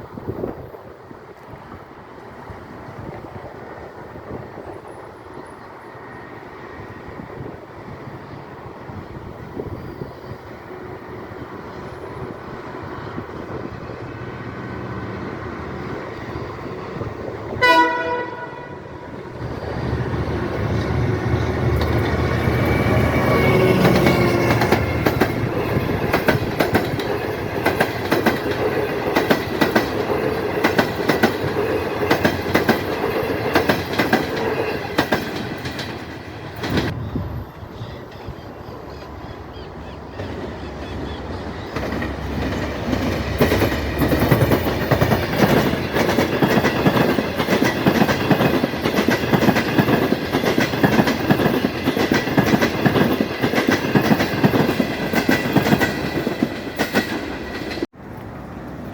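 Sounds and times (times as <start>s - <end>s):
train rumbling: 0.0s - 58.9s
train horn blast: 17.5s - 19.2s
wheels clattering over rail joints: 19.4s - 37.0s, 40.2s - 57.9s.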